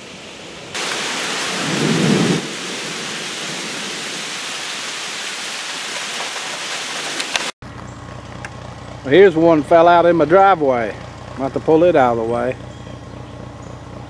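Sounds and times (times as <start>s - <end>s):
heavy rain on trees: 0.0s - 7.6s
low thunder rumble: 1.5s - 2.6s.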